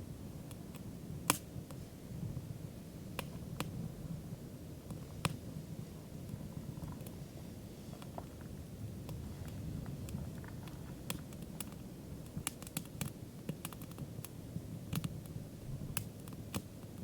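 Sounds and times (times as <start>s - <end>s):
campfire crackling and popping: 0.4s - 1.8s, 3.1s - 3.9s, 4.8s - 17.0s.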